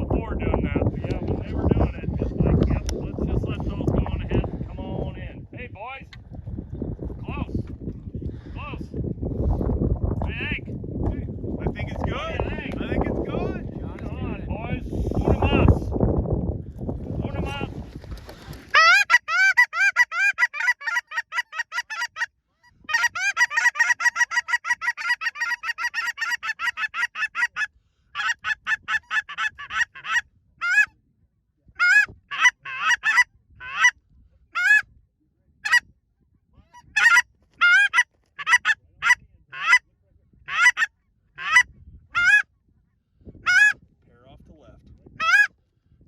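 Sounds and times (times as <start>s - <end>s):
goose call clucks and honks: 18.7s - 31.0s, 31.8s - 34.9s, 35.6s - 35.9s, 36.7s - 42.5s, 43.4s - 43.8s, 45.2s - 45.6s.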